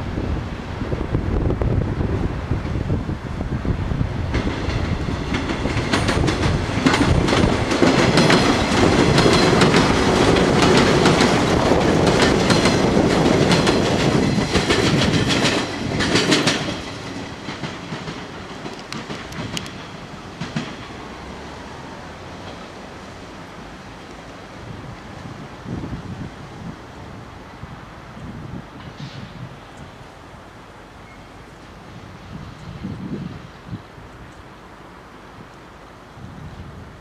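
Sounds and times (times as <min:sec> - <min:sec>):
electric train passing: 0:00.0 - 0:37.0
wheels clicking over rail joints: 0:04.2 - 0:25.4.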